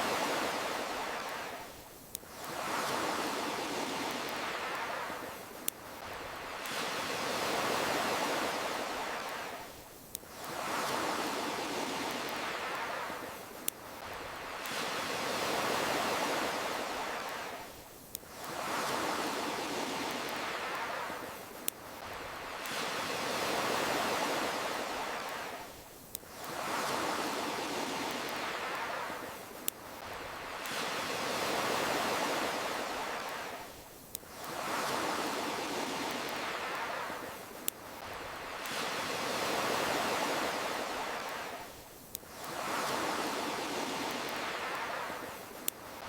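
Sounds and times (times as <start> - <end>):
ocean waves washing: 0.0 - 46.0.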